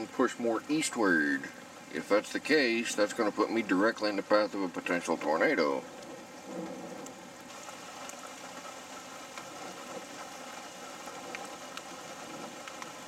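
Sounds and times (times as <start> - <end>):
light rain on a vehicle: 0.0 - 13.0.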